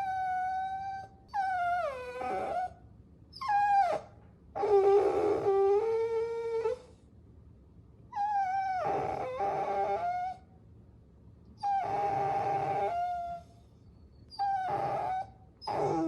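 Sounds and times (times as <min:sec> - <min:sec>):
puppy whining: 0:00.0 - 0:07.0, 0:08.1 - 0:10.5, 0:11.6 - 0:16.0.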